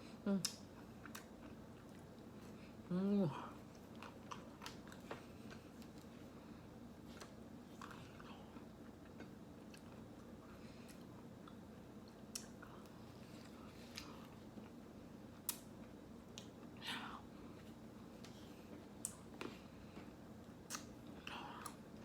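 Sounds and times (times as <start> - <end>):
faint low hum: 0.0 - 22.0
person chewing ice cream: 0.4 - 22.0
wet mouth clicks and lip smacks: 20.6 - 21.0.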